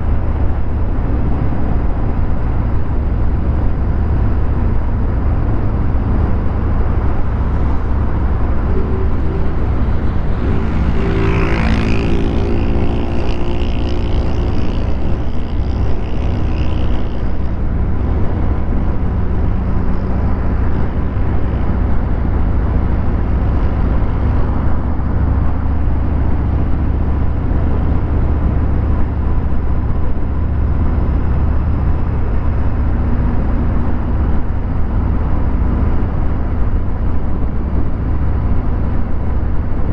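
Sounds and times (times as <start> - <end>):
higher engine note: 0.0 - 28.1
motorcycle engine running: 0.0 - 39.9.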